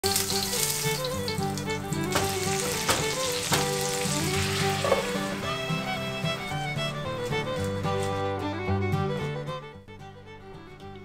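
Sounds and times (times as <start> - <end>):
meat sizzling in frying pan: 0.0 - 6.6
background music: 0.0 - 11.0.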